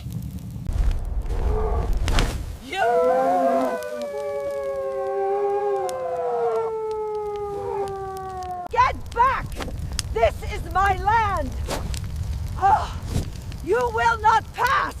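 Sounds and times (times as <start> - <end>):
wolves howling: 2.8 - 8.7.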